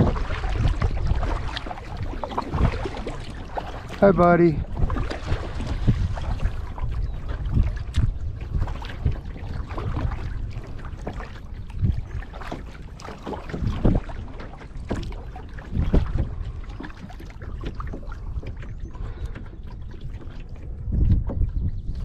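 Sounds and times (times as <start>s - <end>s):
loud water splashes: 0.0s - 6.9s
paddle strokes in water: 0.0s - 22.0s.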